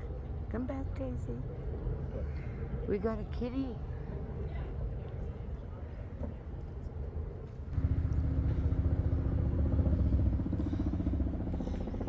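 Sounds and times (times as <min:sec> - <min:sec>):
vehicle engine rumbling: 0:07.8 - 0:12.0.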